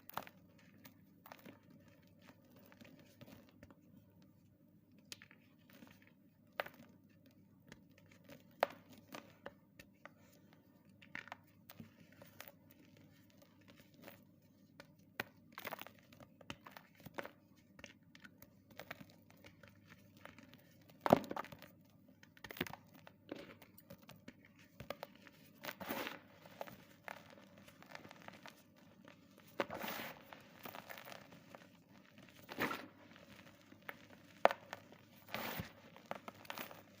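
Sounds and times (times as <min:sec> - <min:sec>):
chalk crunching and crumbling: 0:22.4 - 0:37.0.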